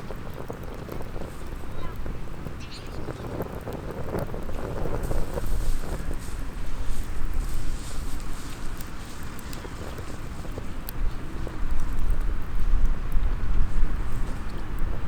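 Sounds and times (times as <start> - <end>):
wind buffeting microphone: 0.0 - 15.0
wood fire crackling and popping: 0.0 - 15.0.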